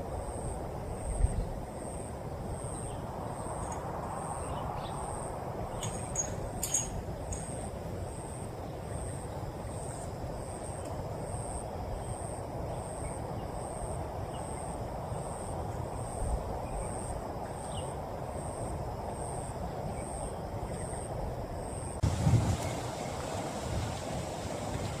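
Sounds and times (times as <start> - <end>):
insect chirping: 0.0 - 24.2
rain rushing: 22.0 - 25.0.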